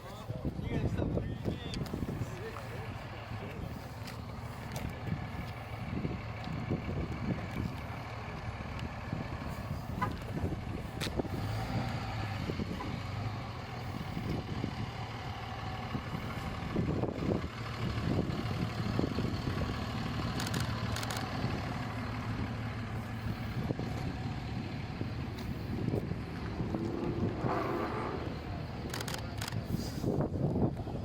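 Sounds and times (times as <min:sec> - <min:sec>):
rumble of running vehicles: 0:00.0 - 0:31.0
sharp clicks: 0:20.3 - 0:21.3, 0:28.8 - 0:29.6.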